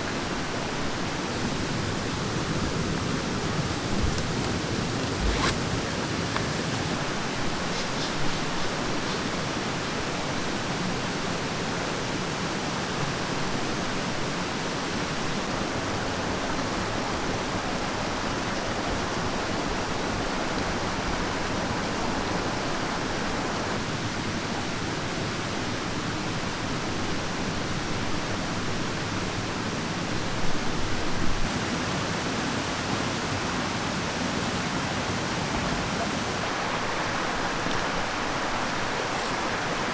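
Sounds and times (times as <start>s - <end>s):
mountain stream rushing: 0.0s - 10.0s, 31.4s - 39.9s.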